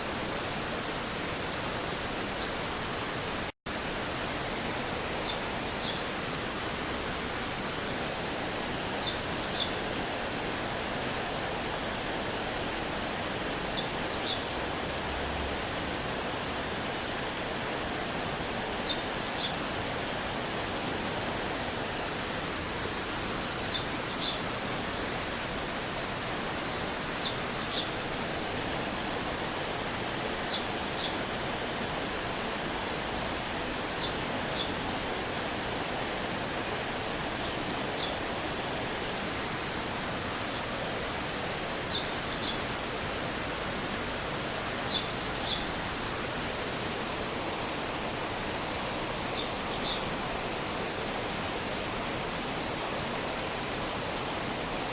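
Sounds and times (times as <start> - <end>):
stream water rushing: 0.0 - 54.9.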